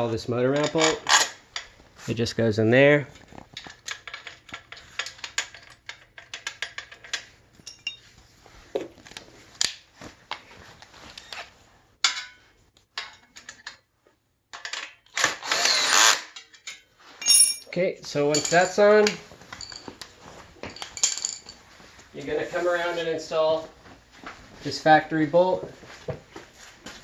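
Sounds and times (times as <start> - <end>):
metallic clinks of bolt and tools: 3.6 - 8.1, 16.4 - 20.0, 20.7 - 21.6.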